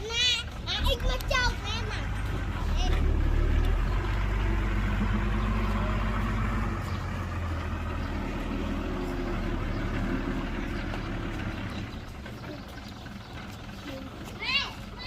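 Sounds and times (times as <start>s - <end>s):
heavy machinery diesel engine drone: 0.0s - 15.0s.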